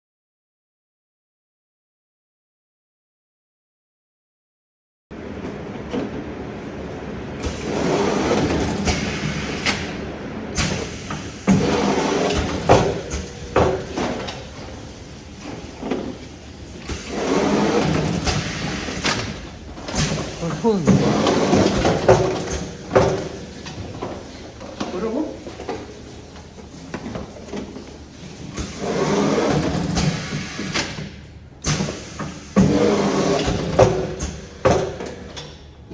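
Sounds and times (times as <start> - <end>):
steady mechanical machine noise: 5.1 - 35.9
machine clacks and thuds: 10.6 - 14.6, 16.8 - 24.9, 28.6 - 35.6.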